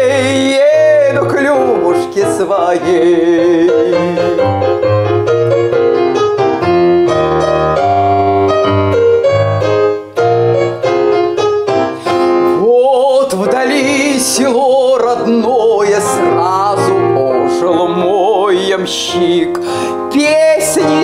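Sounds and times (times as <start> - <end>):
piano chords and bass line: 0.0 - 21.0
woman singing with vibrato: 12.5 - 21.0.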